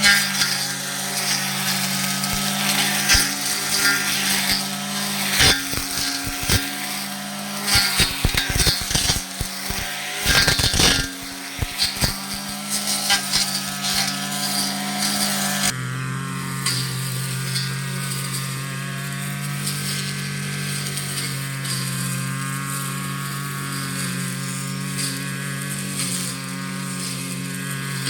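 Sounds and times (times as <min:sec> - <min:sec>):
brush cutter engine running: 0:00.0 - 0:28.0
sharp cracking strikes on weeds: 0:01.2 - 0:15.6.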